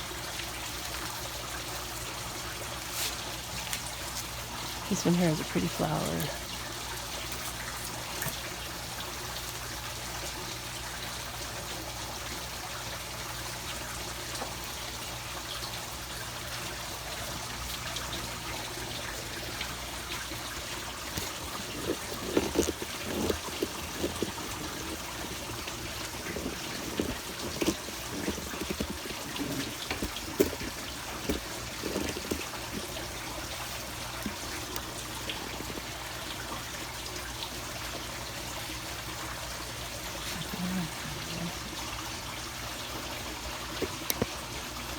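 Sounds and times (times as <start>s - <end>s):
trickle of running water: 0.0s - 44.9s
irregular knocks and handling: 20.5s - 33.0s.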